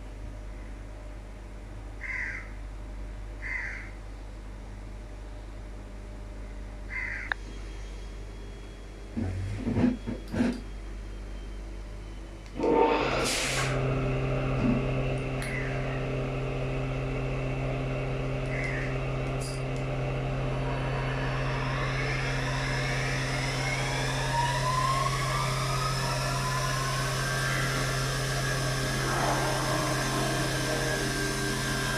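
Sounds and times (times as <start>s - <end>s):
machine humming: 5.7s - 31.9s
whining tones rising in pitch: 12.4s - 31.9s.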